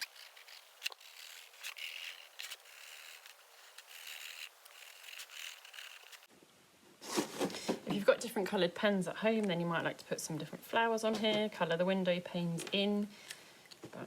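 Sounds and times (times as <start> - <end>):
pen scratching on plastic: 0.0 - 6.3.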